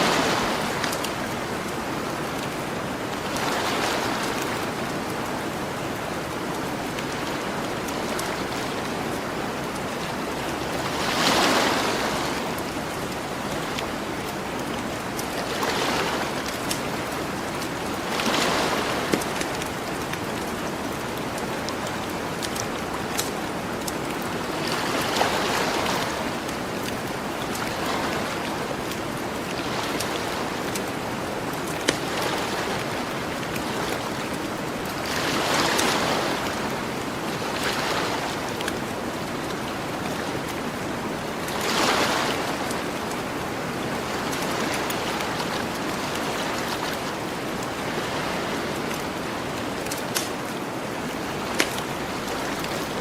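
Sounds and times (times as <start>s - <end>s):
ocean surf on a beach: 0.0s - 53.0s.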